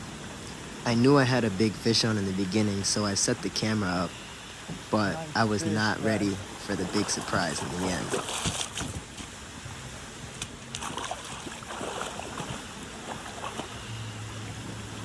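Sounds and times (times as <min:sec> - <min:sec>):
stream water running: 0:00.0 - 0:15.0
short sharp splashes: 0:06.2 - 0:09.4, 0:10.4 - 0:14.0.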